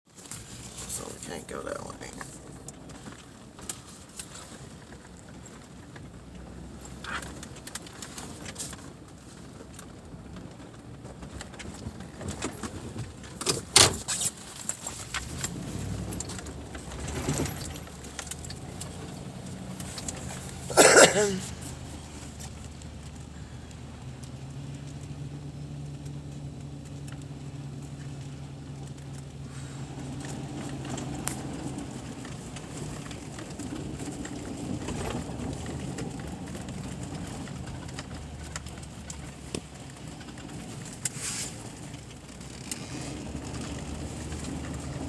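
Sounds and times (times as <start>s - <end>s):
vehicle engine running: 0.1s - 45.0s
clicks and clattering: 2.2s - 25.2s.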